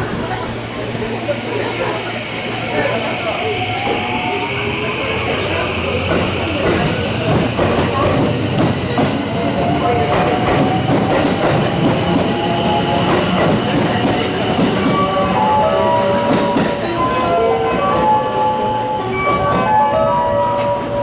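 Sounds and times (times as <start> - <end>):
chiming platform melody: 14.7 - 21.0.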